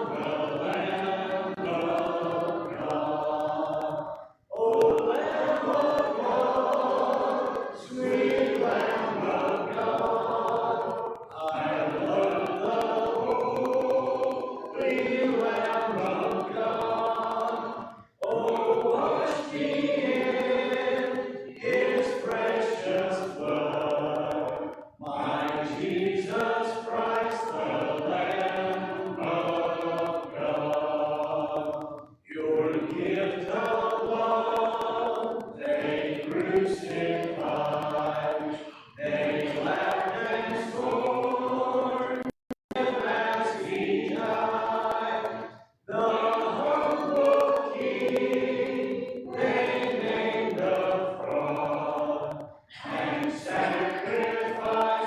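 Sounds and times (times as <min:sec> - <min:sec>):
congregation singing a hymn: 0:00.0 - 0:55.0.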